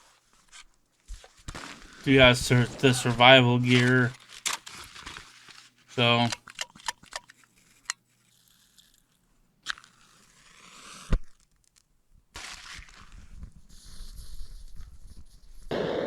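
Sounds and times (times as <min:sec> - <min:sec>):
crackling rustle: 0:00.0 - 0:15.4
gear crunches and clicks: 0:02.1 - 0:09.0.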